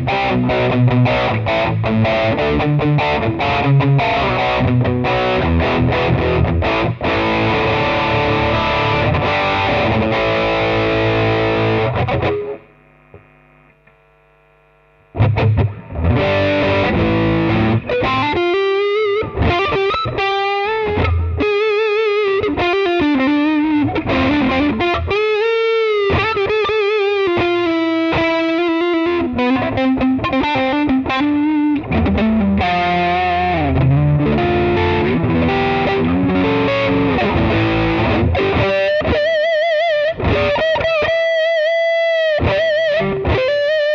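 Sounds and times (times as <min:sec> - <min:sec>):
distorted electric guitar: 0:00.0 - 0:43.9.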